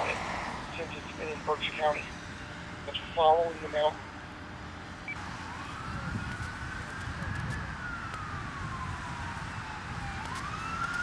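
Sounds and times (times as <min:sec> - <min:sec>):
steady low rumble: 0:00.0 - 0:05.2
siren wailing: 0:05.0 - 0:11.0.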